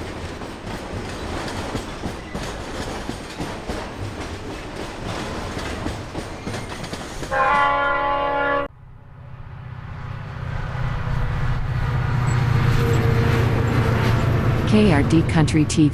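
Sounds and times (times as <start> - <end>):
freight wagons clickety-clack: 0.0 - 7.8
multi-note train horn: 7.3 - 8.8.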